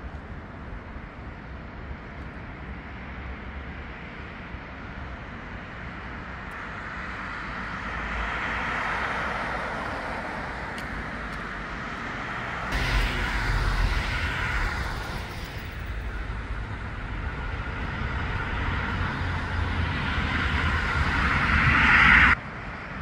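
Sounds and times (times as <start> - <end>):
city street traffic: 0.0 - 23.0
vehicle passing: 12.0 - 22.4
deep rumble: 12.7 - 22.4.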